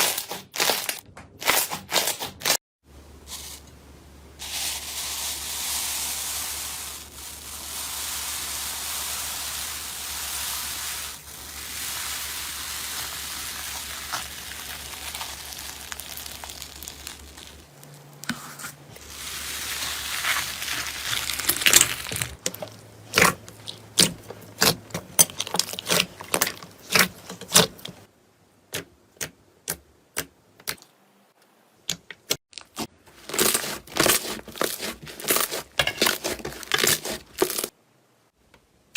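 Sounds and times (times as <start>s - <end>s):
slime stirring hiss: 4.4s - 22.2s.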